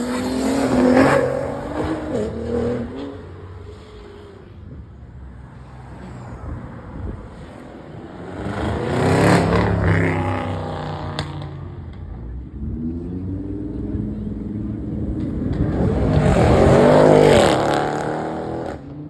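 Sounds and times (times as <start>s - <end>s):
car engines at low revs: 0.0s - 19.0s
car accelerating past: 7.4s - 11.8s, 12.7s - 19.0s.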